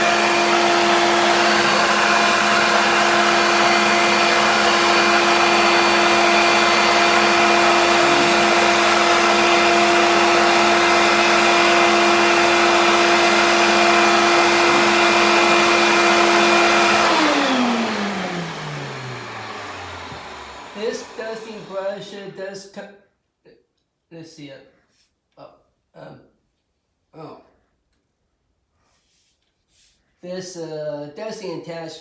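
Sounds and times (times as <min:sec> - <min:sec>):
vacuum cleaner running: 0:00.0 - 0:22.4.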